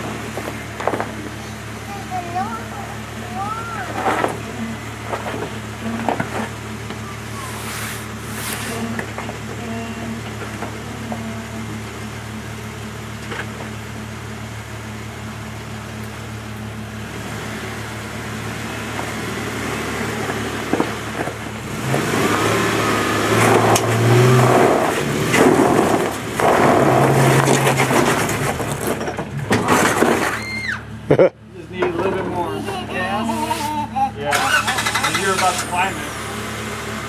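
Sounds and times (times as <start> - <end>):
off-road engine revving: 0.0 - 37.0
tyres knocking and scraping on rock: 25.0 - 30.4.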